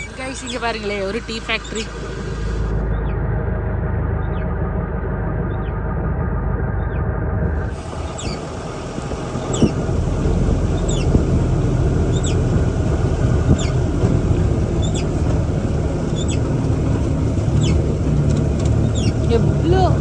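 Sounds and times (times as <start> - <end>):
car cabin road rumble: 0.0 - 20.0
high falling chirp: 8.0 - 8.5, 12.1 - 12.4.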